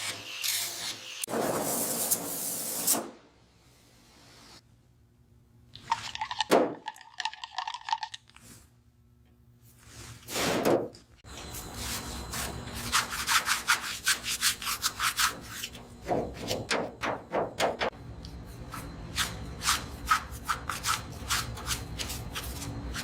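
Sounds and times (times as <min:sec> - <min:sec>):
hand sanding strokes: 0:11.5 - 0:15.8, 0:18.5 - 0:23.0.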